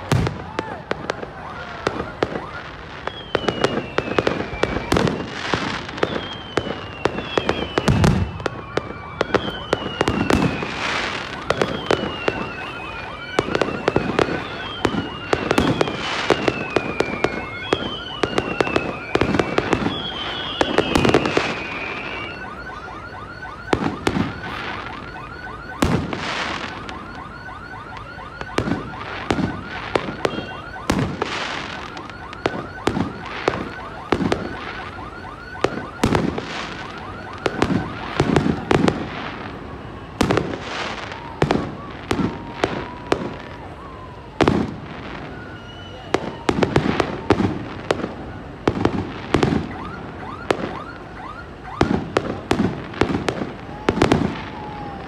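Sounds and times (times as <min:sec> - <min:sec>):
fireworks bangs: 0:00.0 - 0:55.0
wavering whistle: 0:02.4 - 0:25.9, 0:26.7 - 0:36.1, 0:45.3 - 0:46.5.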